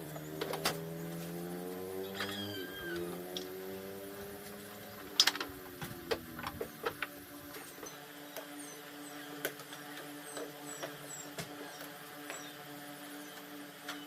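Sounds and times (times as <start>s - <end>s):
mechanical hum: 0.0s - 14.0s
sharp clicks and knocks: 4.4s - 7.9s.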